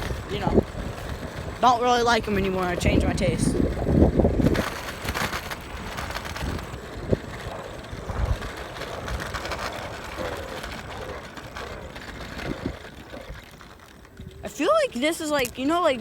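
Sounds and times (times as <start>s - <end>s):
scooter tyre and road noise: 0.0s - 16.0s.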